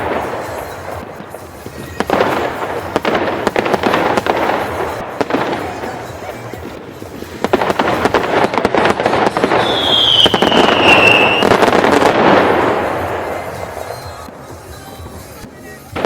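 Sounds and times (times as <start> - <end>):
fireworks crackling bangs: 0.0 - 16.0
firework whistle falling in pitch: 9.6 - 11.6.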